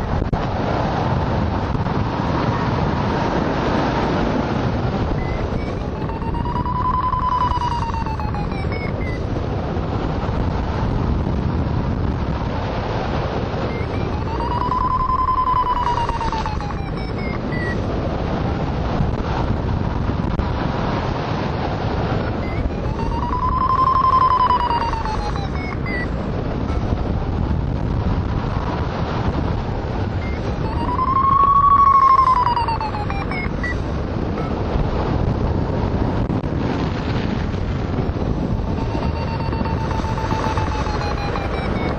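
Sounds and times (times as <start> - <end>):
wind noise on microphone: 0.0 - 41.9
variometer quick beeps: 5.1 - 9.3, 13.6 - 17.8, 22.2 - 27.0, 30.2 - 33.8, 34.4 - 34.6, 38.4 - 41.9.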